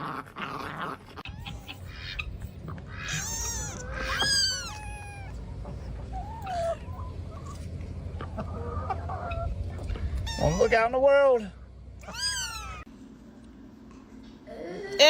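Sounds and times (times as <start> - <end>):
cat meowing: 2.9 - 5.4, 12.0 - 12.9.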